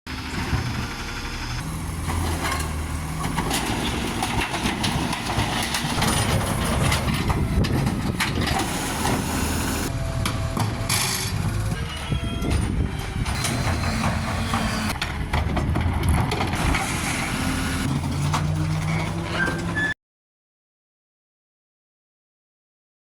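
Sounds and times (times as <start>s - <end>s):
garbage truck engine running: 0.1s - 20.0s
knocks and clatter: 2.1s - 9.3s, 12.4s - 16.9s.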